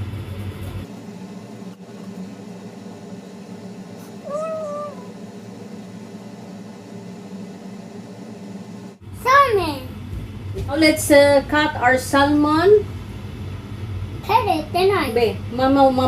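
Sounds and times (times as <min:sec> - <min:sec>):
low background hum: 0:00.0 - 0:16.0
cat meowing: 0:04.2 - 0:05.1.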